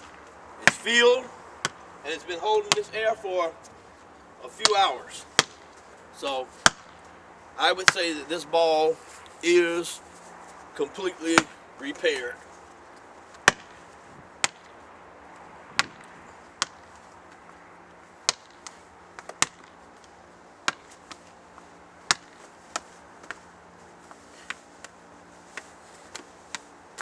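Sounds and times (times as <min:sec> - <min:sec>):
soccer ball smacking hard surface: 0:00.0 - 0:03.3, 0:04.6 - 0:05.8, 0:06.6 - 0:07.0, 0:11.3 - 0:11.6, 0:13.3 - 0:13.8, 0:14.4 - 0:14.7, 0:15.7 - 0:17.0, 0:18.2 - 0:19.8, 0:20.6 - 0:21.2, 0:22.1 - 0:23.4.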